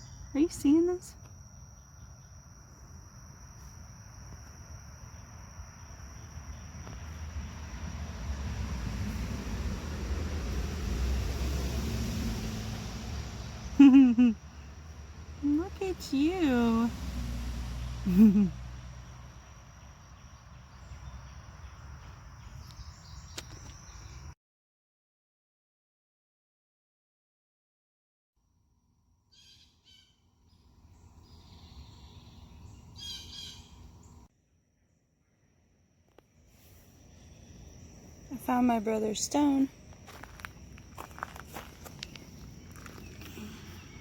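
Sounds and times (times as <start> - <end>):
insects chirring: 0.0 - 9.2, 18.0 - 24.3, 29.3 - 44.0
low wind rumble: 4.9 - 13.8.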